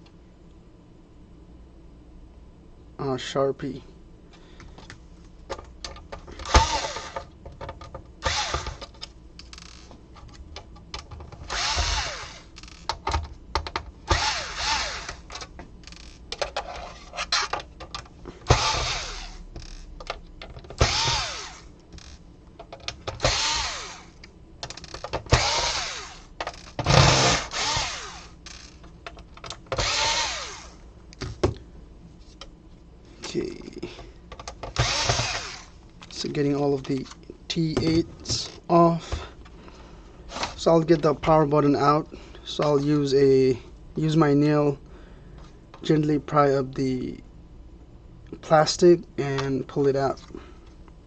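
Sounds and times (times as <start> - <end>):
electric screwdriver whirring: 6.4 - 7.2, 8.2 - 8.8, 11.5 - 12.5, 14.1 - 15.2, 18.5 - 19.7, 20.8 - 22.1, 23.2 - 24.2, 25.3 - 28.6, 29.7 - 30.8, 34.8 - 35.7.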